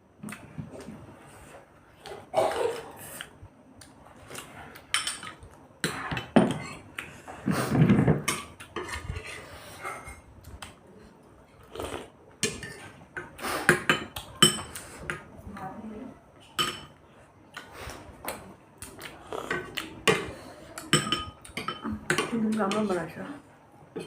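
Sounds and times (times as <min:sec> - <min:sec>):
cutlery clinking on plates: 0:12.4 - 0:15.2, 0:16.5 - 0:17.0, 0:19.5 - 0:22.8.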